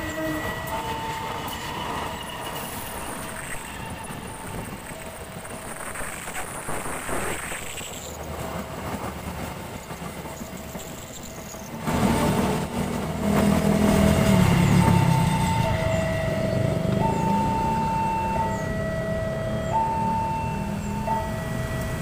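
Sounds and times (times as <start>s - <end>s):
level crossing alarm beeping: 0.0s - 5.0s, 14.0s - 22.0s
high wheel squeal: 0.0s - 8.2s, 10.3s - 12.6s
loud train rumble: 0.0s - 22.0s
train coaches running on rails: 0.0s - 22.0s.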